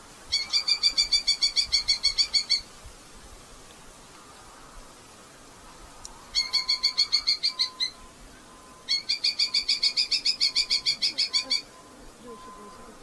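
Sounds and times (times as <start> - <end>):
falcon chattering calls: 6.3 - 8.0, 8.9 - 11.8.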